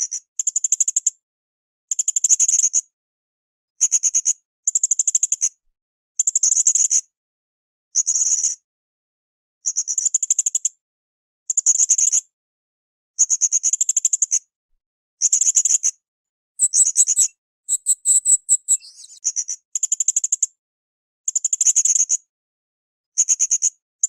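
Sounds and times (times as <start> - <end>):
parrot chattering trills: 16.6 - 19.2.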